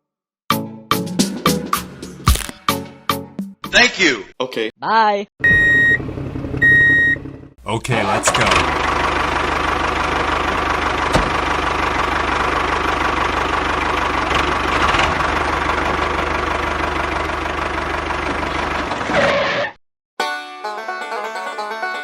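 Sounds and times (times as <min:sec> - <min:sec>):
small engine idling: 0:06.0 - 0:19.1.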